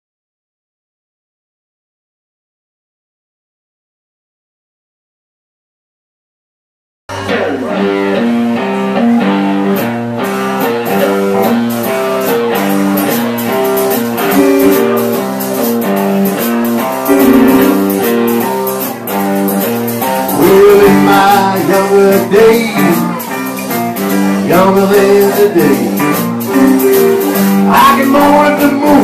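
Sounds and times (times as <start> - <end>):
blues-rock band playing: 7.1 - 29.0
guitar picking pattern: 7.1 - 29.0
regular drum beats: 9.6 - 29.0.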